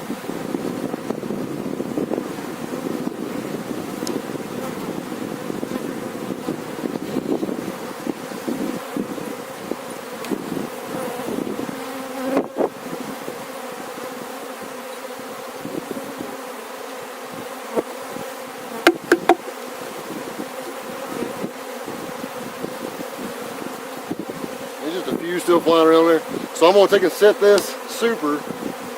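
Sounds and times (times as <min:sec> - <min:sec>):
honey bees buzzing: 0:00.0 - 0:28.9
sharp knocks: 0:18.8 - 0:19.4.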